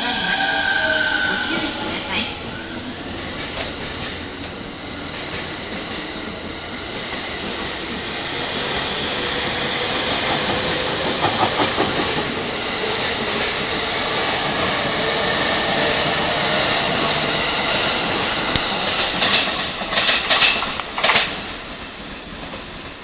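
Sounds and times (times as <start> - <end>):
electric train moving: 0.0 - 23.0
wheels clicking over rail joints: 14.4 - 23.0.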